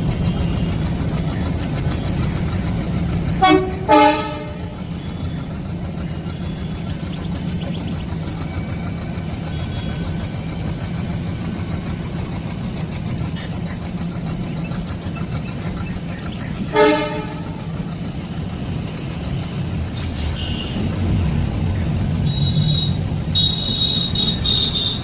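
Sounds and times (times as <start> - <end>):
train rumbling: 0.0 - 25.0
train horn toot: 3.4 - 5.0, 16.7 - 17.8, 19.6 - 20.9, 22.2 - 25.0.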